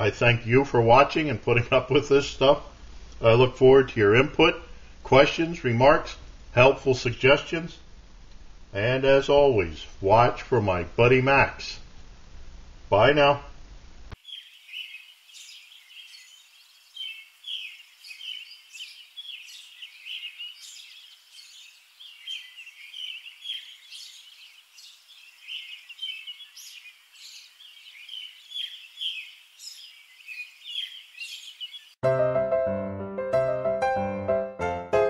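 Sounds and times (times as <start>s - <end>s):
small birds chirping: 14.1s - 32.0s
piano music: 32.0s - 35.0s.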